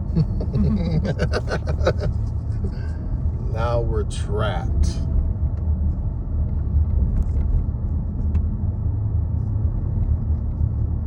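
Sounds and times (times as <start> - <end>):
train rumble inside carriage: 0.0 - 11.0.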